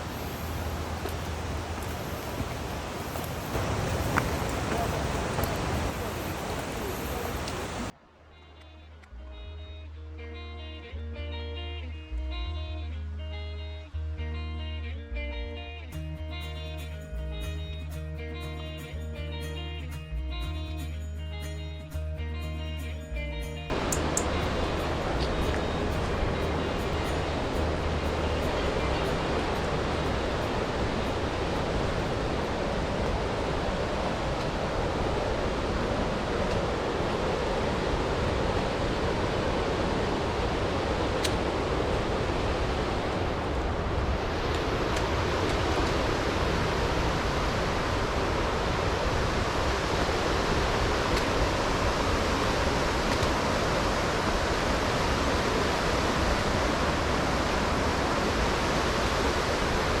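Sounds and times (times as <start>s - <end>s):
rushing water: 0.0s - 8.6s, 23.7s - 60.0s.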